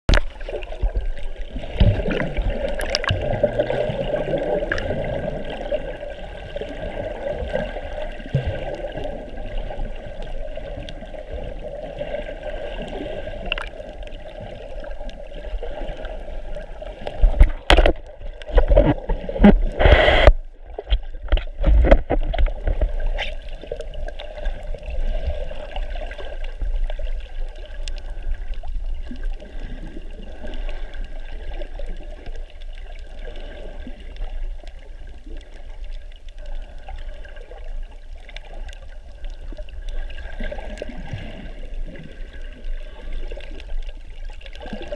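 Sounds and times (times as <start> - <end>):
water sloshing and gurgling: 0.0 - 44.9
loud splashes and knocks: 17.2 - 23.0.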